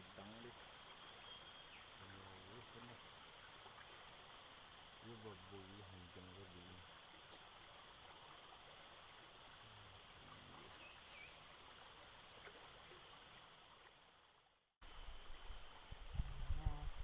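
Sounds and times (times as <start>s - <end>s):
faint outdoor hiss: 0.0s - 17.0s
insects chirring: 0.0s - 17.0s.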